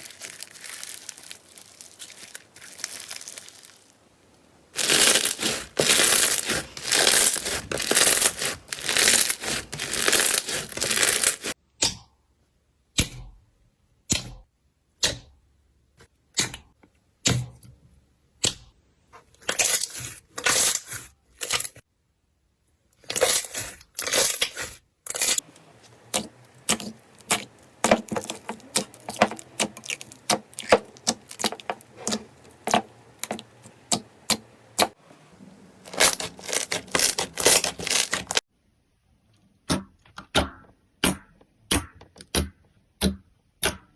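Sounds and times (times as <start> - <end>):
slime crunching: 0.0 - 4.0, 4.8 - 11.6, 23.1 - 35.0, 35.7 - 38.4.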